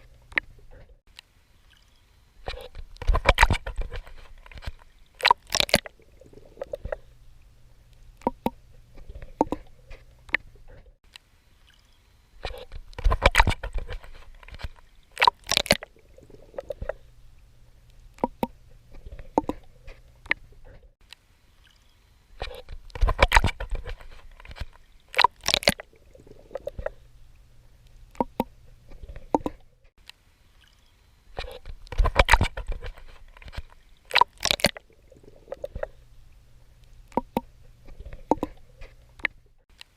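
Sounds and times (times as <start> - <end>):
person swimming with splashing strokes: 22.4 - 27.1.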